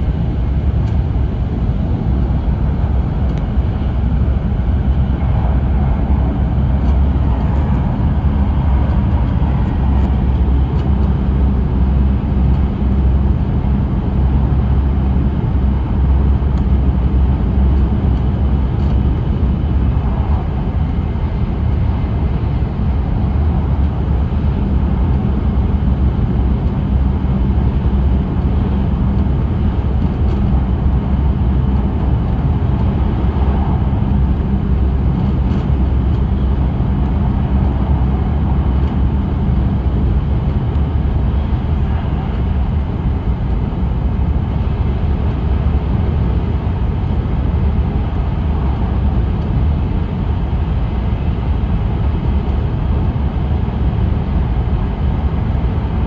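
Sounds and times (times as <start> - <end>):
train interior rumble: 0.0 - 56.0.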